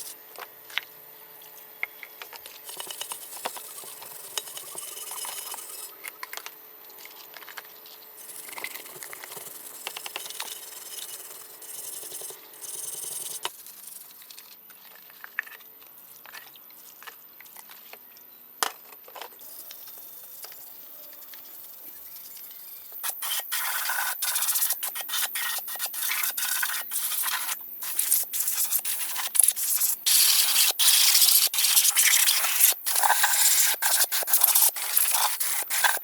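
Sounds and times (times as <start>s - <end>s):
rubbing and scraping on parts: 22.9s - 36.0s.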